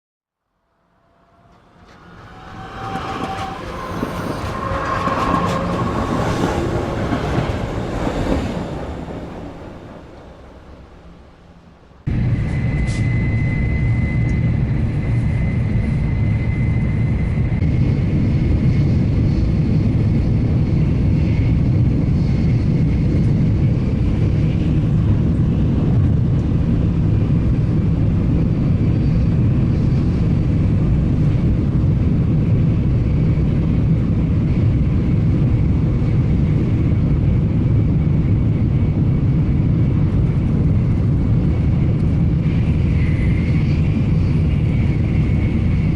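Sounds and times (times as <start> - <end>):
thin high whine: 0.4 - 7.1
train wheels rumbling on rails: 0.8 - 45.9.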